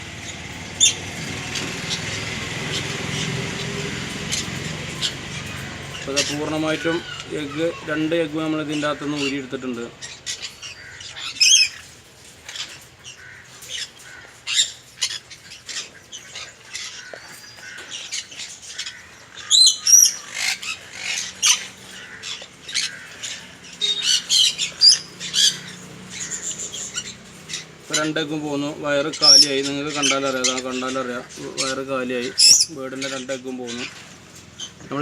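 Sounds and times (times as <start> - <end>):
parrot squawking harshly: 0.8 - 8.0, 10.0 - 11.9, 12.5 - 28.2, 29.0 - 34.0.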